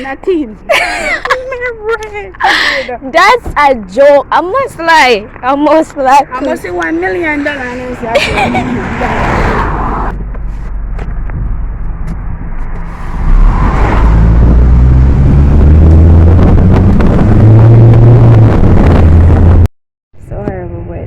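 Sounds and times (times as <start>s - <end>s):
vehicle engine running: 10.1s - 19.7s.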